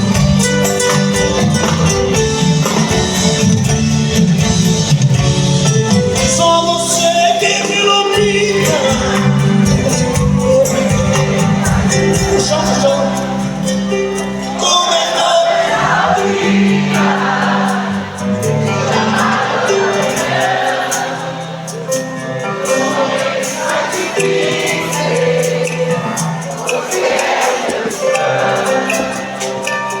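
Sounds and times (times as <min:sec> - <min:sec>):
live band music: 0:00.0 - 0:30.0
voices singing together: 0:06.4 - 0:30.0.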